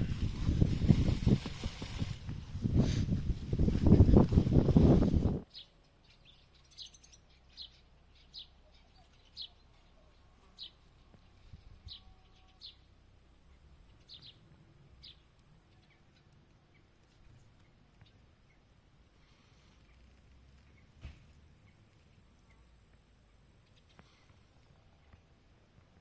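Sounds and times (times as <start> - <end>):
faint songbird chirps: 5.4 - 25.6.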